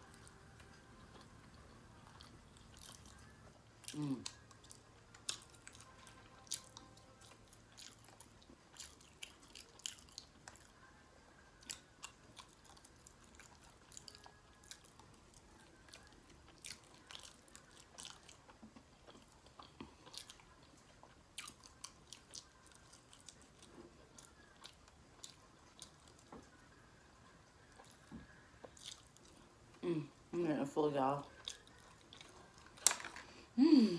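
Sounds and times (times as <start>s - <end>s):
chewing soft food: 0.0s - 29.9s, 31.2s - 33.2s.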